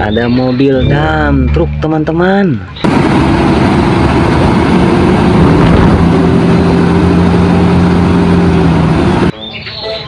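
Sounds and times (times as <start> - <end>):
heavy truck engine running: 2.8 - 9.3.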